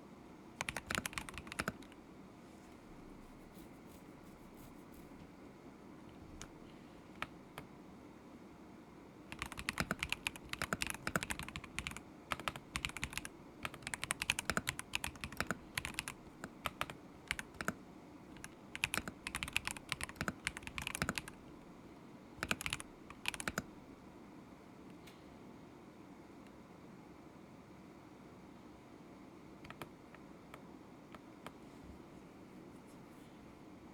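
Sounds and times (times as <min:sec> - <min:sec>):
mechanical keyboard typing: 0:00.6 - 0:02.0, 0:09.3 - 0:21.4, 0:22.4 - 0:23.7, 0:29.6 - 0:29.9.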